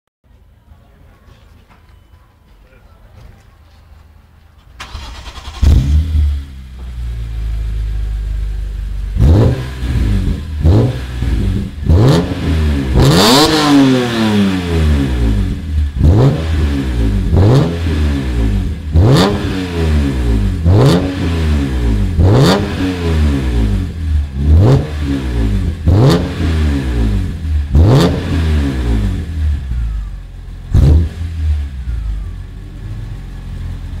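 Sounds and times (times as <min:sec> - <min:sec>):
car engine revving: 0:04.8 - 0:34.0.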